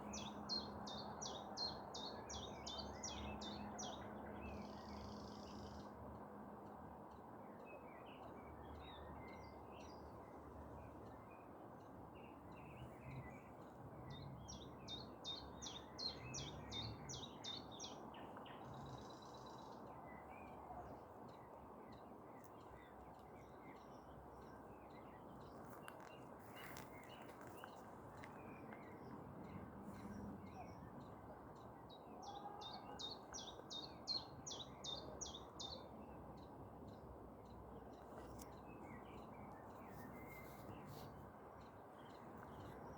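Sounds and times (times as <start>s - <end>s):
low hum of city noise: 0.0s - 42.9s
songbirds chirping and singing: 12.4s - 41.0s.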